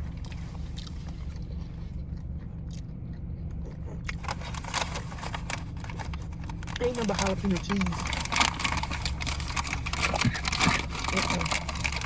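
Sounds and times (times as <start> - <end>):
crackling and rustling clicks: 4.2 - 12.0.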